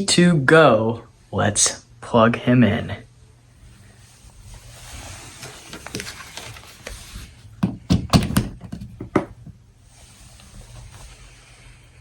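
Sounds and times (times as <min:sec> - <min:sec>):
rustling: 0:03.5 - 0:07.6, 0:08.4 - 0:12.0
plug knocking and clicking into socket: 0:07.6 - 0:09.3.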